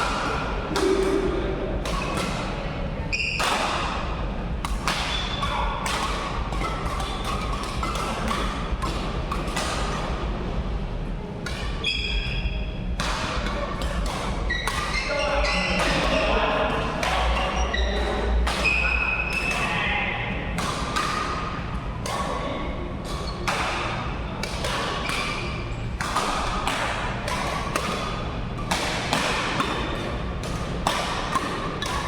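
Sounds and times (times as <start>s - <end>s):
rackets striking shuttlecock: 0.0s - 32.0s
shoe squeaks on court floor: 3.1s - 3.4s, 11.8s - 12.6s, 14.5s - 15.9s.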